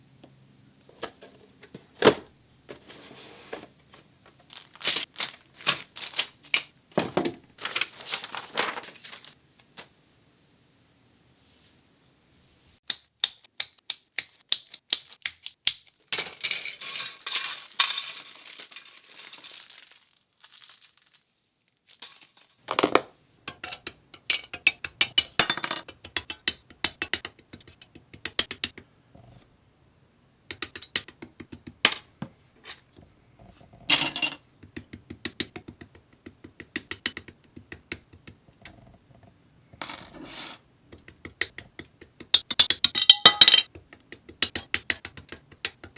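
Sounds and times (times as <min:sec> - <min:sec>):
rustling: 0:07.6 - 0:09.9, 0:16.2 - 0:22.8.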